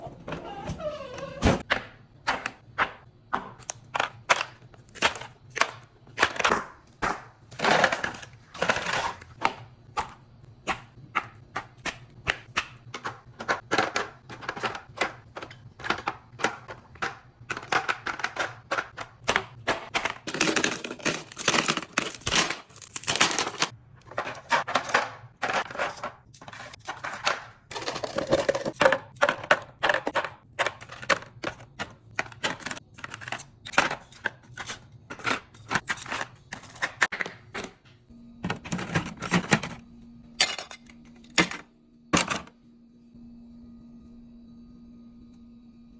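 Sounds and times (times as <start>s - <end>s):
ice cubes clinking into container: 20.0s - 31.6s.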